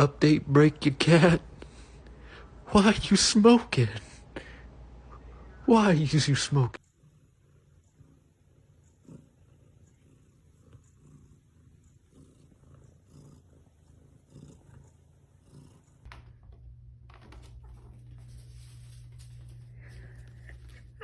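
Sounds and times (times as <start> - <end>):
cat purring: 6.8 - 16.7.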